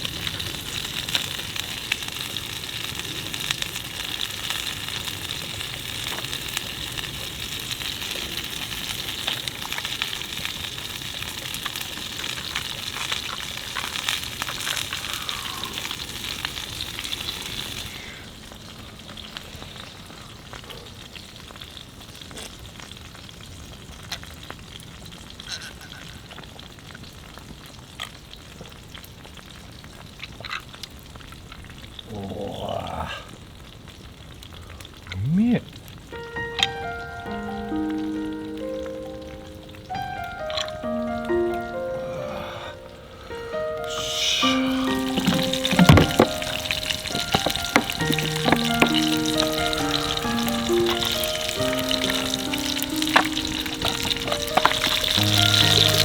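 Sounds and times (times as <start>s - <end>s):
food sizzling in a pan: 0.0s - 33.0s, 43.1s - 56.0s
small pops: 44.4s - 56.0s.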